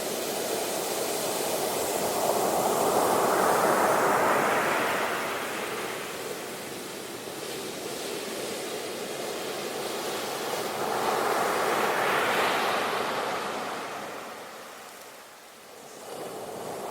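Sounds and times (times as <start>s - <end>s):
wind: 0.0s - 16.9s.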